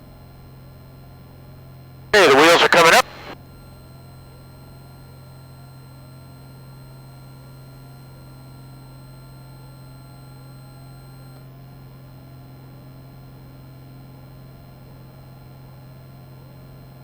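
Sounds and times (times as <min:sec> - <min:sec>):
airplane engine and propeller drone: 0:02.2 - 0:03.4.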